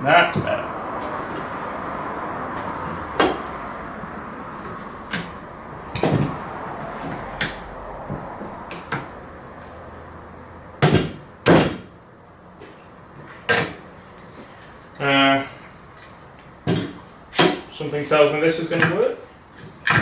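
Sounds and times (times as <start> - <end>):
knocks and clicks of metal and wood: 10.8 - 11.9, 19.6 - 20.0
loud knocks: 10.8 - 11.9.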